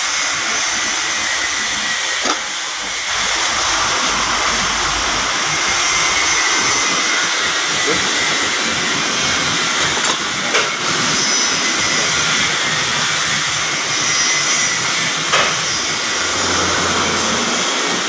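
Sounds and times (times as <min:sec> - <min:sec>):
loud rushing hiss: 0:00.4 - 0:09.8, 0:15.6 - 0:18.0.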